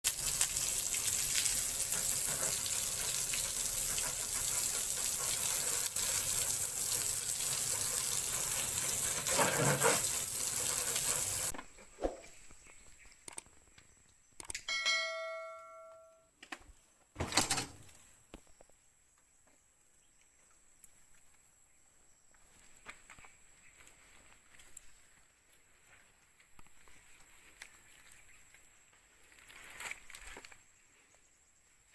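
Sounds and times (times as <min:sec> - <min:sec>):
loud steady hiss: 0:00.1 - 0:11.5
bell-like ding: 0:14.7 - 0:16.3.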